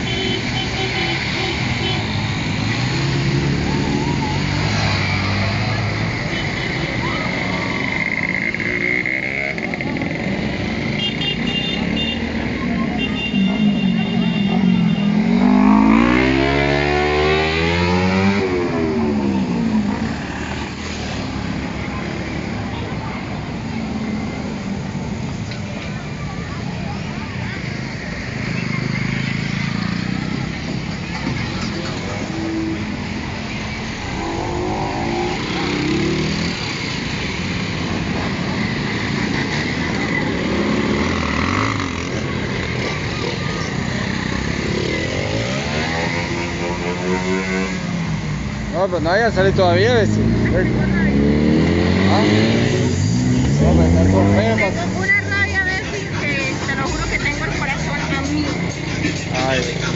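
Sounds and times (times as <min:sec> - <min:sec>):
motorcycle engine revving: 0:14.4 - 0:21.7, 0:28.7 - 0:59.9.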